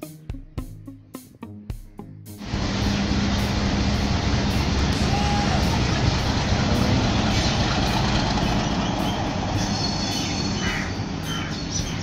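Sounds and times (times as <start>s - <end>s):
train rumbling: 2.4s - 12.0s.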